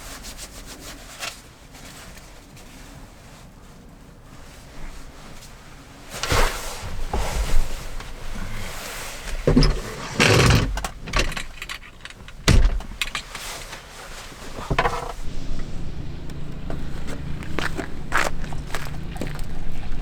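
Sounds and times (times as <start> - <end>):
rustling: 0.1 - 20.0
knocks and clunks: 6.2 - 20.0
hard thud: 9.4 - 13.4
steady low hum: 14.2 - 20.0.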